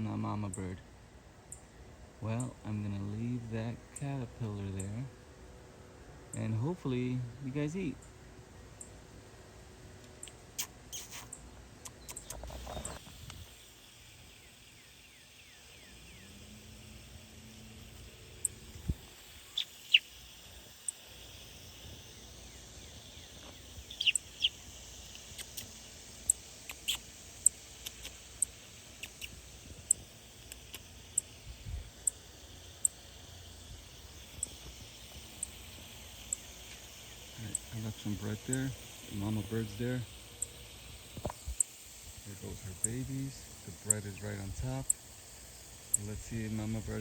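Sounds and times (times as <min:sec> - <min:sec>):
small birds chirping: 0:10.0 - 0:47.0.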